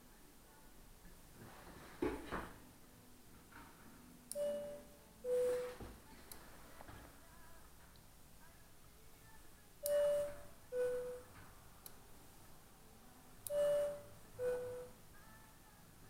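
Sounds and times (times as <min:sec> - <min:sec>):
two-note electronic chime: 0:04.4 - 0:05.7, 0:09.9 - 0:11.2, 0:13.5 - 0:15.0.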